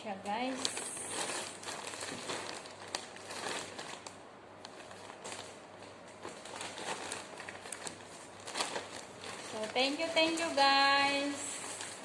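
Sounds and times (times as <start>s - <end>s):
packaging rustling: 0.4s - 12.0s.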